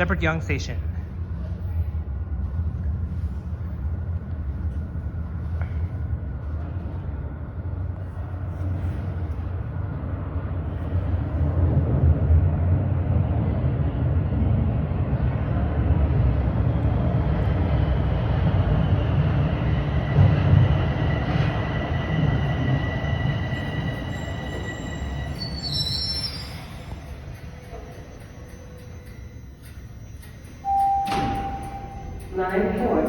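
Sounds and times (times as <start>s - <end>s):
subway train rumbling on rails: 0.0s - 33.0s
high wheel squeal: 22.4s - 32.2s.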